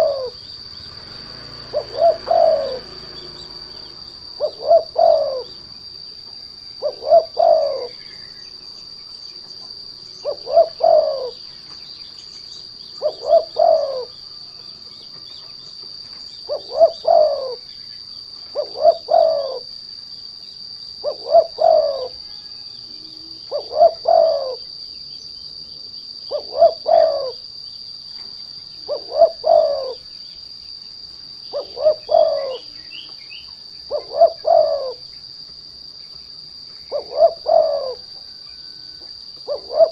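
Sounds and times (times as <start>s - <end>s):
dove cooing: 0.0s - 8.6s, 9.4s - 11.8s, 12.8s - 14.7s, 16.0s - 17.7s, 18.4s - 19.8s, 21.0s - 24.8s, 26.2s - 27.6s, 28.8s - 30.1s, 31.4s - 35.1s, 36.8s - 39.9s
high-pitched insect whine: 0.0s - 39.9s.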